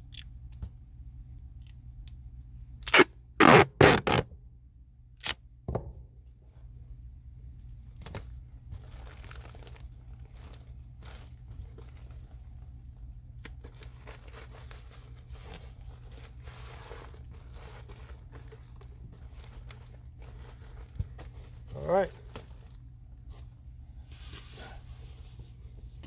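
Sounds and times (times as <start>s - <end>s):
ductwork and tape rustling: 2.8s - 4.3s, 7.9s - 26.0s.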